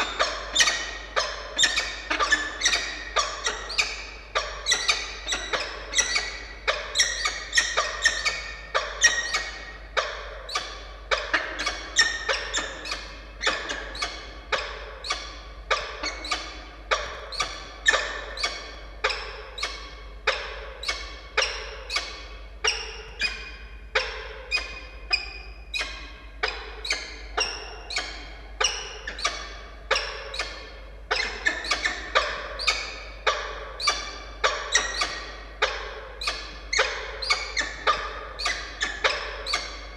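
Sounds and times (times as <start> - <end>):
falcon calling: 0.0 - 23.4.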